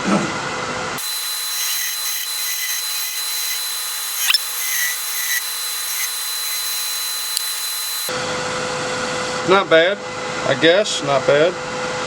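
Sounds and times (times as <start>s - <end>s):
chisel scrape: 1.0s - 8.1s
lathe high whine: 1.0s - 8.1s
wood lathe cutting hiss: 1.0s - 8.1s.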